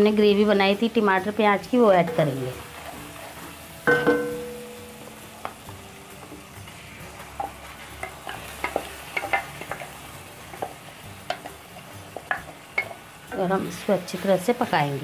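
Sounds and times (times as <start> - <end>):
hot oil sizzling: 0.0 - 15.0
spatula tapping and scraping: 7.4 - 13.4.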